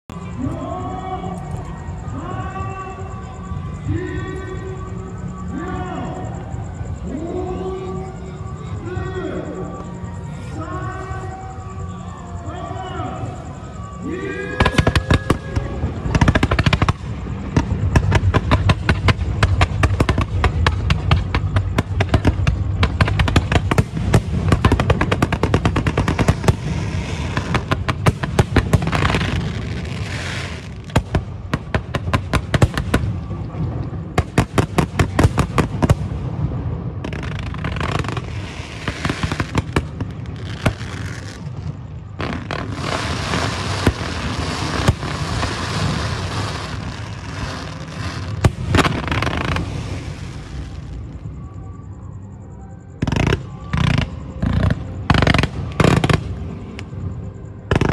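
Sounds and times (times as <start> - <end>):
fireworks cracks and bangs: 14.1 - 51.3, 53.0 - 57.9.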